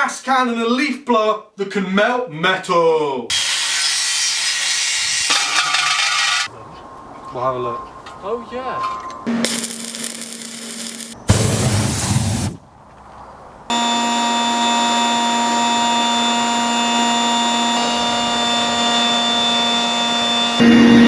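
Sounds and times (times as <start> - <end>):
rushing blast of air: 9.5 - 12.6
leaf blower whining: 13.7 - 21.0.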